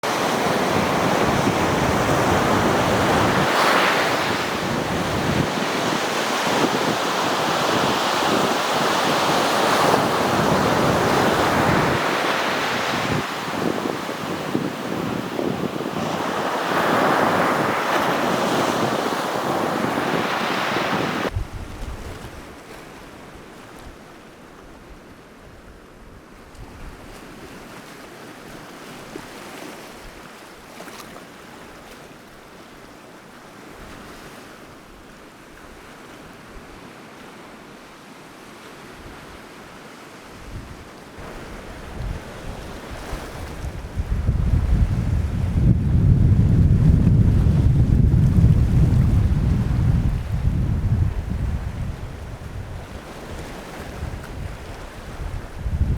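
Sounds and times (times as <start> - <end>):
sea waves on shore: 0.0 - 55.9
wind buffeting microphone: 0.2 - 22.7, 40.4 - 55.9.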